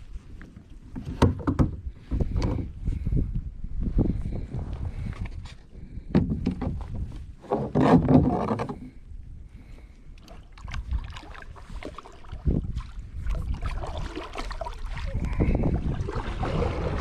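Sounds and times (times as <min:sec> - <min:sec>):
knocks and clatter on kayak hull: 0:00.4 - 0:02.8, 0:06.1 - 0:09.0.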